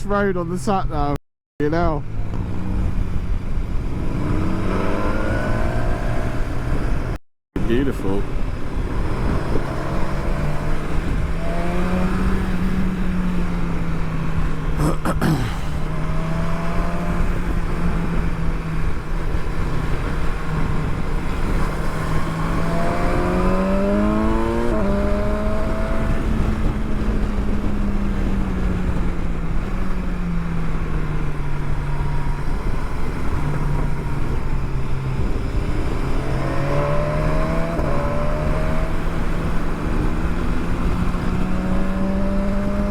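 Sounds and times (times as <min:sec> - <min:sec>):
motorcycle engine revving: 0:02.0 - 0:07.2, 0:08.2 - 0:42.9
wind rushing: 0:15.8 - 0:29.9, 0:31.2 - 0:42.9.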